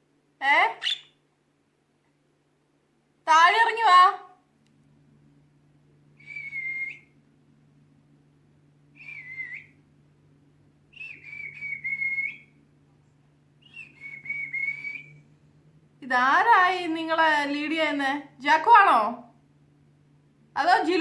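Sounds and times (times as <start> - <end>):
drawn-out high whistles: 6.2 - 7.2, 8.9 - 9.8, 10.9 - 12.6, 13.6 - 15.3.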